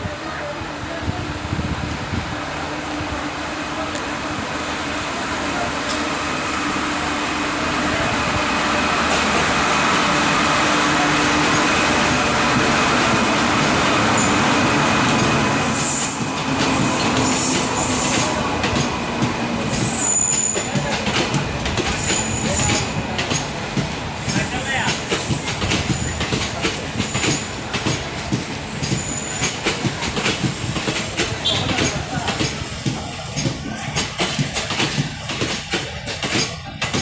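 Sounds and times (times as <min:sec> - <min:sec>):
train rolling rumble: 0:00.0 - 0:37.0
clatter of train wheels: 0:09.0 - 0:37.0.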